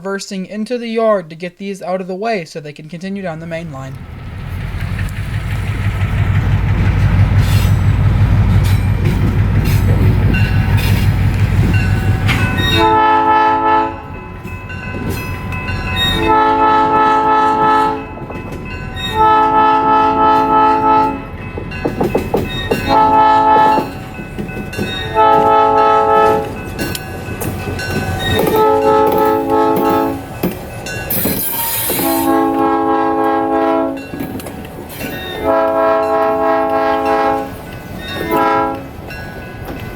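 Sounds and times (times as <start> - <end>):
diesel locomotive engine rumble: 3.3 - 39.9
train chime horn blasts: 11.7 - 21.4, 22.6 - 24.0, 24.7 - 27.0, 27.8 - 30.4, 31.1 - 34.2, 35.1 - 39.2.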